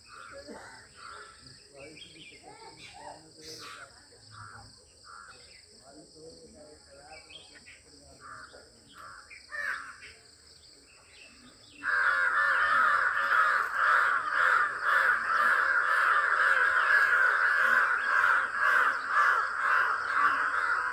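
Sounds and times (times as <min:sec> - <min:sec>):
harsh crow-like bird calls: 0:03.6 - 0:05.7, 0:08.2 - 0:10.2, 0:11.7 - 0:20.9.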